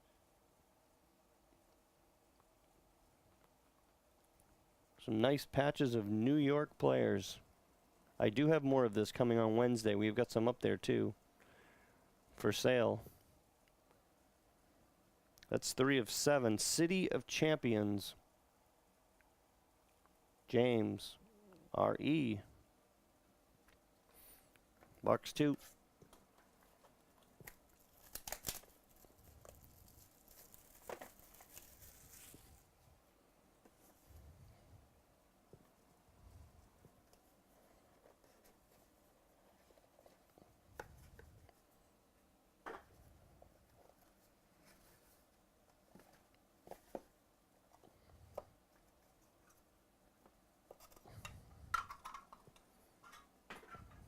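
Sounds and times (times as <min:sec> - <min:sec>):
packaging crinkling: 0:27.3 - 0:32.6.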